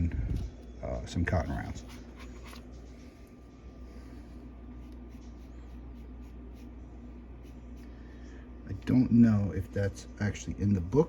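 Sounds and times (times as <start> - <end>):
low electrical hum: 0.0 - 11.0
sponge rubbing on paper: 4.7 - 7.8.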